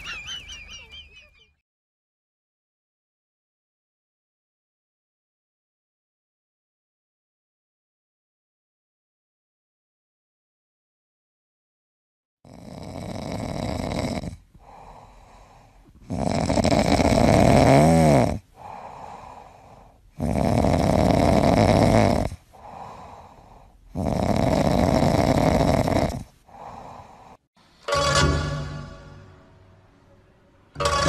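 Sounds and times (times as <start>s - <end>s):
cat snoring: 12.5s - 27.4s
cat breathing quietly: 14.5s - 16.1s, 18.5s - 20.2s, 22.4s - 24.0s, 26.3s - 27.5s.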